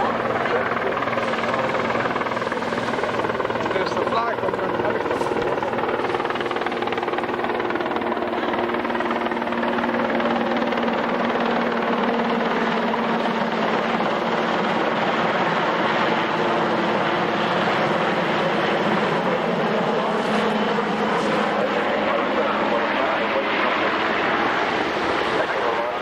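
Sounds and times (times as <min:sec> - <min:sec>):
aircraft engines droning: 0:00.0 - 0:26.0.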